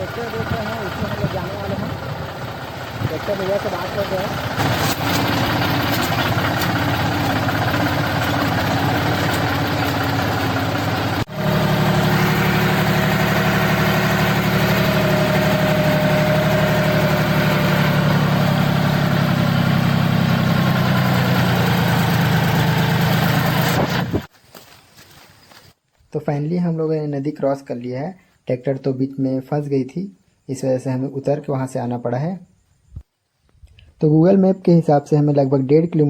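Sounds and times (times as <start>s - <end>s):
tractor diesel engine running: 0.0s - 24.3s.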